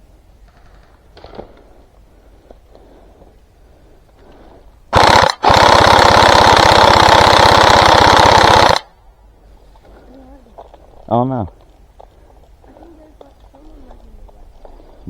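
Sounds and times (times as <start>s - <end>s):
airsoft gun firing bursts: 4.9s - 8.9s.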